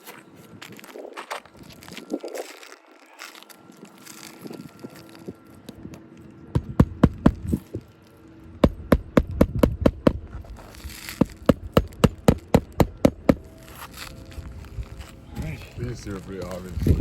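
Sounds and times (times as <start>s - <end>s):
hammer striking shingle roof: 6.6s - 7.5s, 11.2s - 13.4s.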